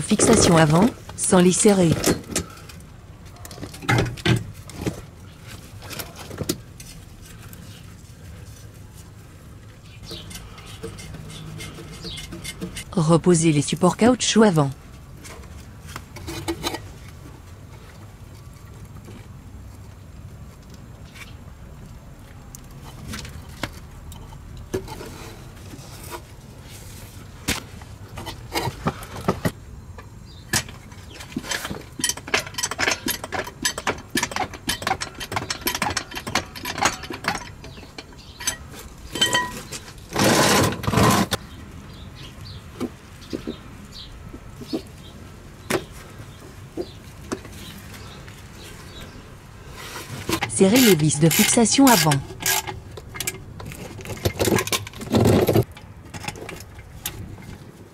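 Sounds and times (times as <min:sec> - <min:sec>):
metal clinks and rattles: 0:30.5 - 0:41.2
loud scraping: 0:39.1 - 0:41.4.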